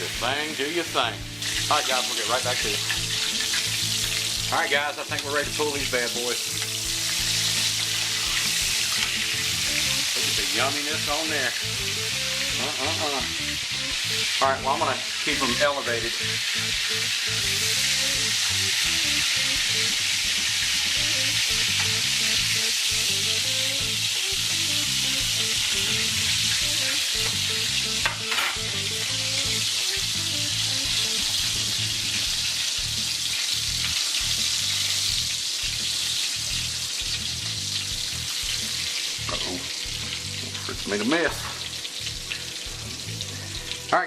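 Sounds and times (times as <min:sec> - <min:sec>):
oil sizzling in deep fryer: 0:00.0 - 0:44.0.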